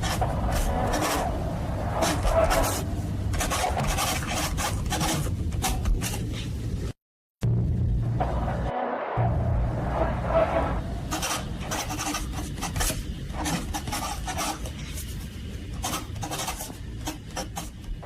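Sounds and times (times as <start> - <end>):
steady low rumble: 0.0 - 4.2, 6.5 - 12.2
scraping strokes: 0.0 - 6.6, 9.2 - 17.9.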